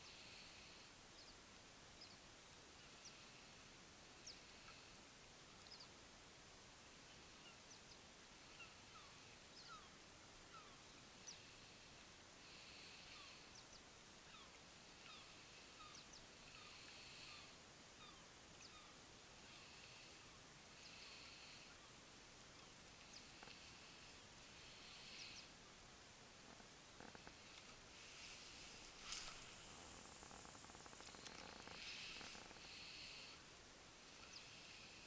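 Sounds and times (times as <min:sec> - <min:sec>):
faint bird chirps: 0:00.0 - 0:03.6, 0:04.2 - 0:05.0, 0:05.6 - 0:06.0, 0:07.0 - 0:25.6, 0:34.2 - 0:35.0.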